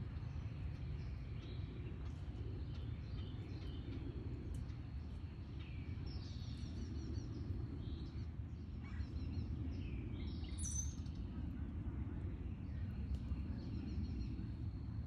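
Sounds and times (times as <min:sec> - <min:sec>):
small birds chirping: 0:00.0 - 0:11.7
low background rumble: 0:00.0 - 0:15.0.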